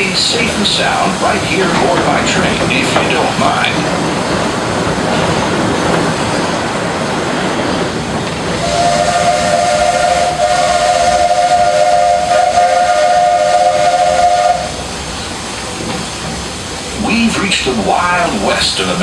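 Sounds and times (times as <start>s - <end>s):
steam locomotive running: 0.0s - 19.0s
steam whistle blast: 8.6s - 14.8s.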